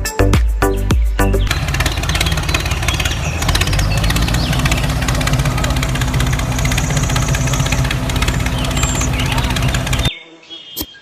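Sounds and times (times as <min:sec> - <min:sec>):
engine idling with knocking: 0:01.4 - 0:10.1.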